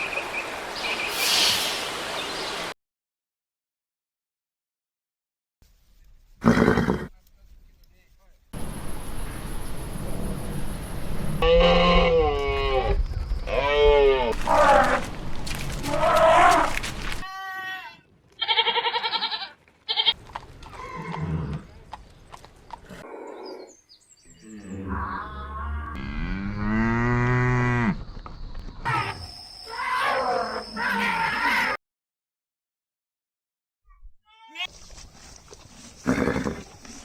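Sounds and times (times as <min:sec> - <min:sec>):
cow mooing: 0:25.6 - 0:28.0.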